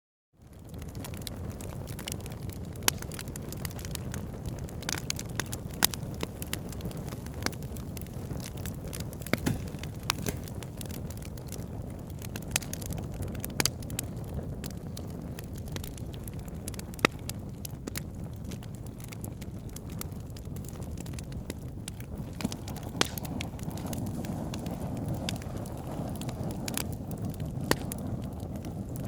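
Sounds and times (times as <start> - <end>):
campfire crackling and popping: 0.4 - 29.0.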